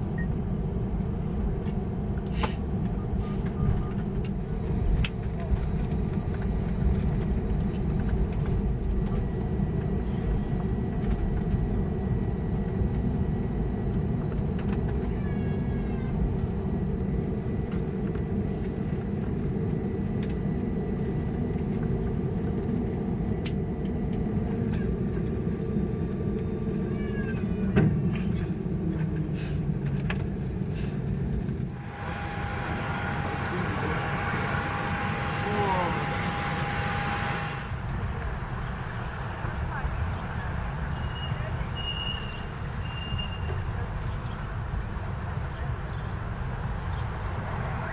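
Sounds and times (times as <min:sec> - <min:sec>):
aircraft cabin rumble: 0:00.0 - 0:40.5
high steady whine: 0:31.1 - 0:38.1
faint squeaky chirps: 0:40.9 - 0:43.7.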